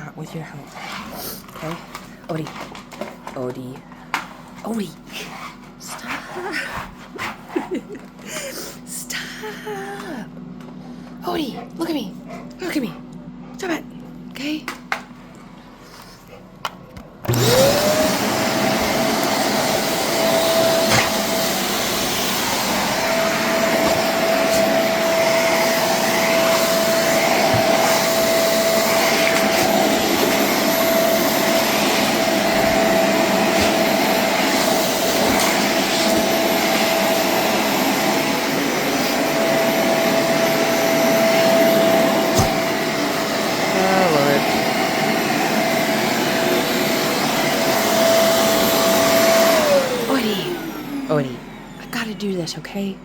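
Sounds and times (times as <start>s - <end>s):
vacuum cleaner motor whining: 16.7s - 52.5s.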